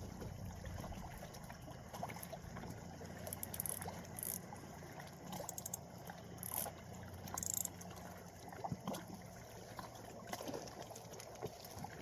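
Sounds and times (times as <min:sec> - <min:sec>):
low steady hum: 0:00.0 - 0:10.2
small waves lapping: 0:00.0 - 0:12.0.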